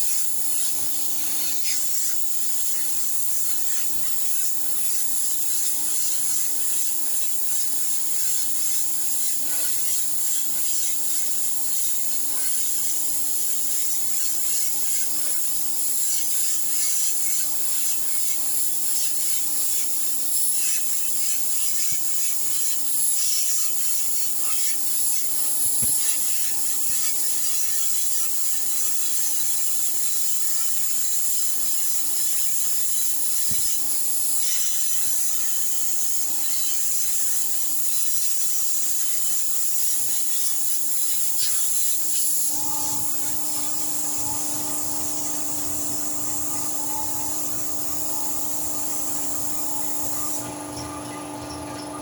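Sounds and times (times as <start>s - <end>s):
small pops: 25.6s - 26.1s
steady low hum: 42.0s - 52.0s.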